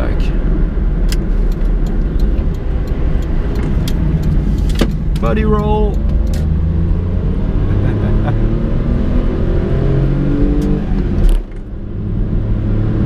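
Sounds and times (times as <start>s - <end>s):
car engine revving: 0.0s - 13.0s
gear change thump: 1.0s - 7.0s, 10.5s - 11.8s.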